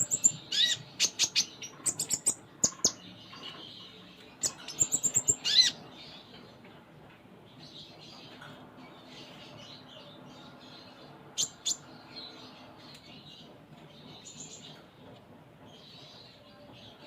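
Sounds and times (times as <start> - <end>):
sunbird chirping: 4.4 - 5.8.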